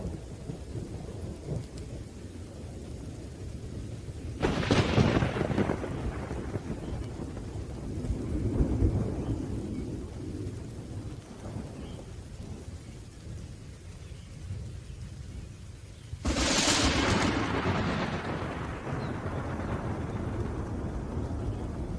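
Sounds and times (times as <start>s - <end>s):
rolling thunder rumbling: 0.0s - 21.9s
steady rain: 0.0s - 21.9s.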